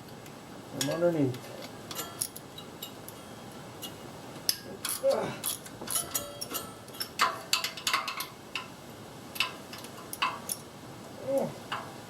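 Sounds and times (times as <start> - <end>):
hand tools clinking on metal: 1.9 - 3.0, 3.8 - 8.7
person grunting: 5.0 - 5.4.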